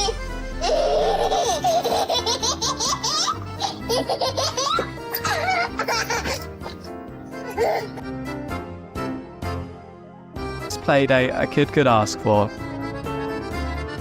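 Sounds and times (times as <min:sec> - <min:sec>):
baby laughing and squealing: 0:00.0 - 0:08.0
background music: 0:00.0 - 0:14.0.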